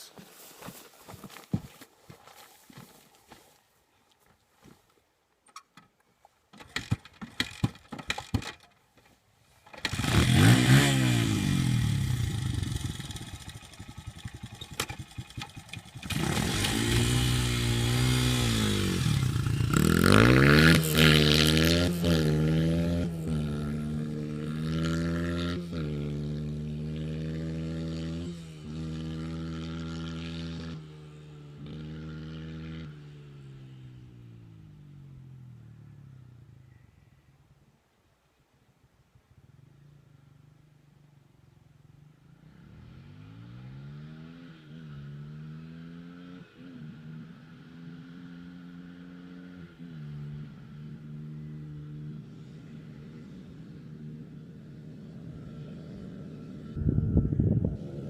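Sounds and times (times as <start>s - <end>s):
dirt bike engine revving: 9.8s - 34.8s, 42.4s - 47.1s.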